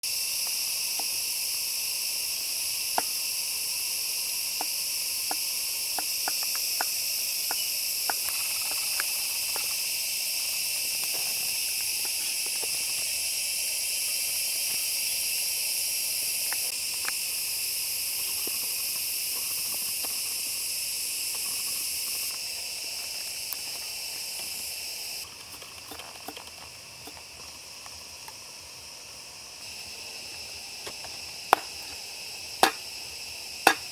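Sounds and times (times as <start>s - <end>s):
high-pitched insect chorus: 0.0s - 33.9s.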